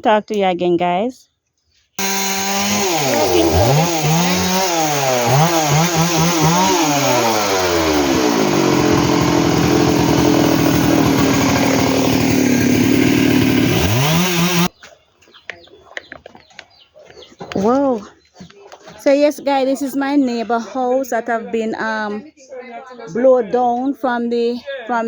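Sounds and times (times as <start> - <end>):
chainsaw revving: 2.0 - 14.7.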